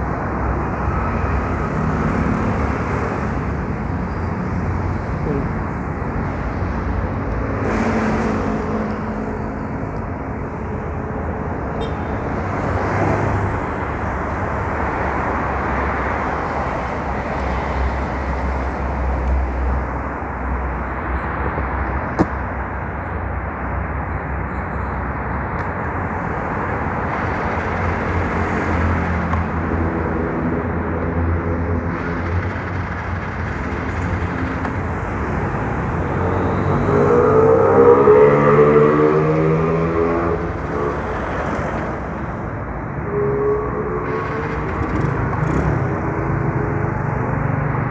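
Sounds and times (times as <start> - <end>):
road and wind noise: 0.0 - 47.9
scooter engine running: 44.1 - 47.4.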